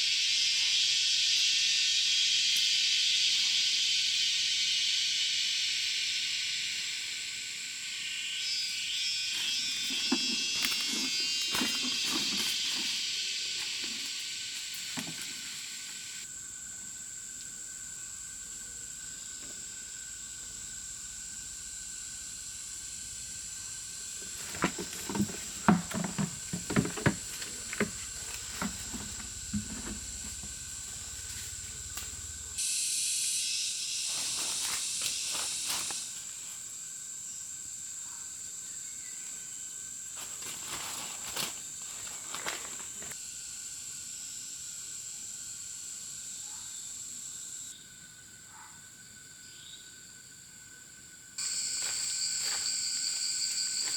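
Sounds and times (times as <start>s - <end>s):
loud hissing noise: 0.0s - 37.6s
insects droning: 0.0s - 53.9s
sharp knocks and rustles: 9.4s - 15.7s, 23.8s - 32.6s.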